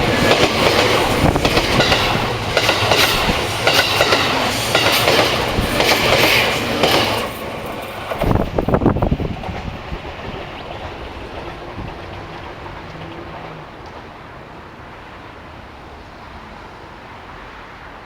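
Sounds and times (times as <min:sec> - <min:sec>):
passing train rumble: 0:00.0 - 0:18.0.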